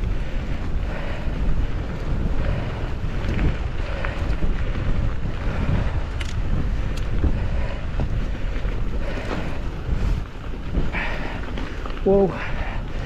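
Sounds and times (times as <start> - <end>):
wind buffeting microphone: 0.0 - 13.0
faint clicks: 6.1 - 7.2.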